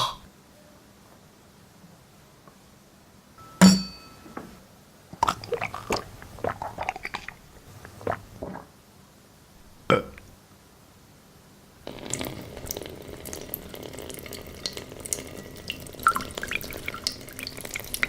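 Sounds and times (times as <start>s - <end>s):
sharp ringing clink: 3.4s - 4.6s.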